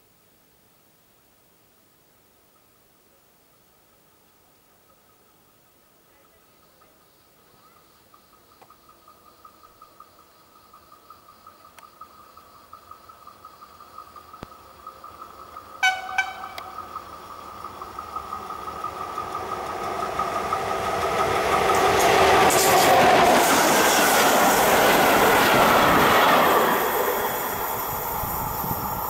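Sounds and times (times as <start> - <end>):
train horn toots: 15.8 - 16.8
train wheels clattering over joints: 17.8 - 27.2.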